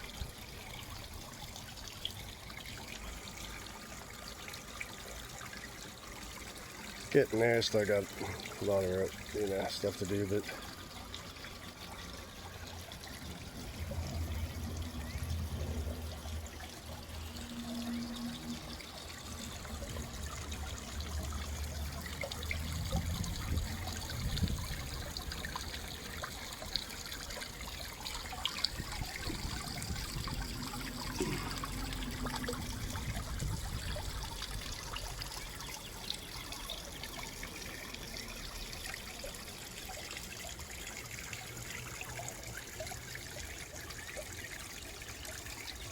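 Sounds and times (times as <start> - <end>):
water trickling in a pond: 0.0 - 45.9.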